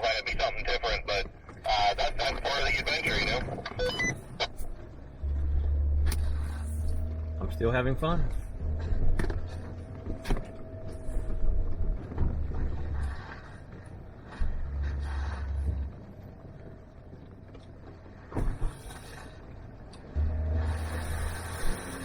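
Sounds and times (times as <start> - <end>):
vehicle driving on dirt trail: 0.0 - 22.0.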